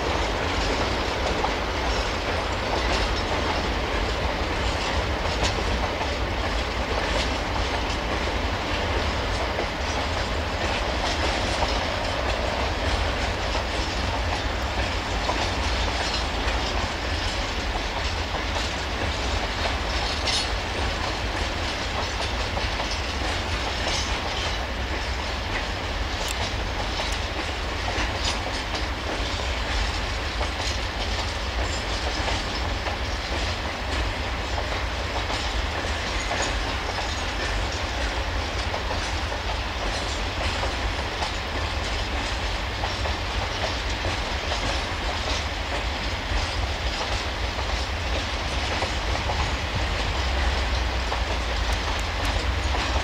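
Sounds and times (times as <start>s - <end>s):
wheels clicking over rail joints: 0.0s - 53.0s.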